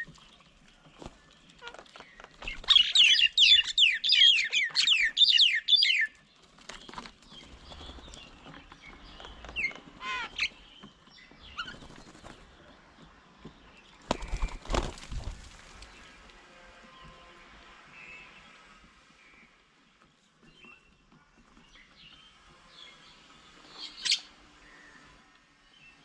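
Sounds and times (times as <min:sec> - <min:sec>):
bird calling: 0:01.6 - 0:06.2, 0:07.5 - 0:12.3.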